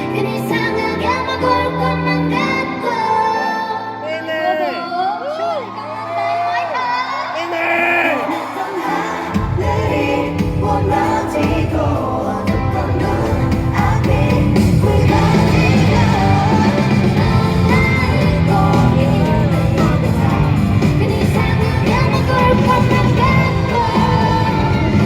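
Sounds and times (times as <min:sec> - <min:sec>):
group singing live: 0:06.1 - 0:25.0
pop backing track with beat: 0:09.1 - 0:25.0.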